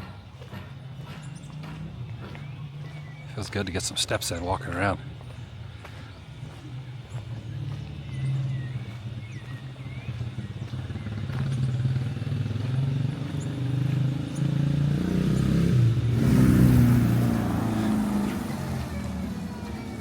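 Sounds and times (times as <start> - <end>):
vehicle engine approaching: 0.0 - 20.0.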